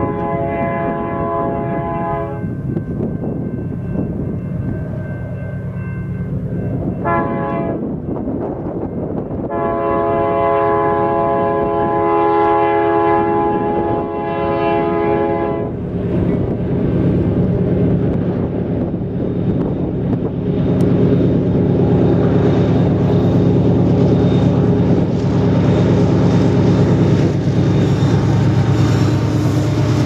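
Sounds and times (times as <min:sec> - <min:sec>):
train air horn blasts: 0:00.0 - 0:02.5, 0:07.0 - 0:08.0, 0:09.4 - 0:15.8.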